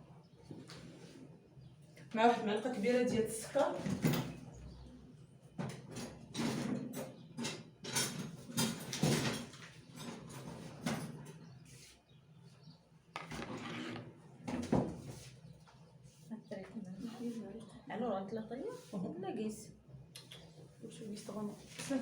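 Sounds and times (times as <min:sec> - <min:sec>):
kitchen utensils knocking and scraping: 0:13.2 - 0:14.9.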